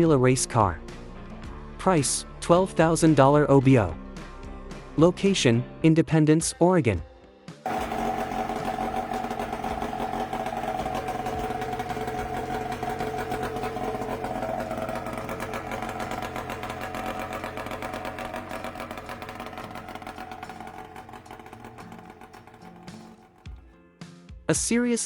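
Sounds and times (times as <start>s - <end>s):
two-stroke race car engine: 7.7s - 23.7s.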